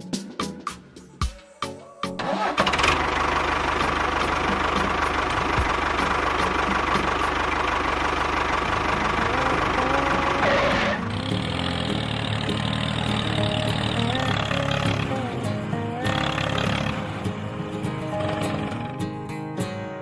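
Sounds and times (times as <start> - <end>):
small engine idling: 2.3 - 19.2.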